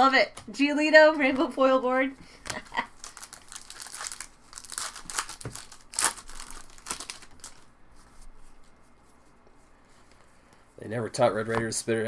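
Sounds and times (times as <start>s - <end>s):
plastic wrapper crinkling: 2.4s - 7.8s.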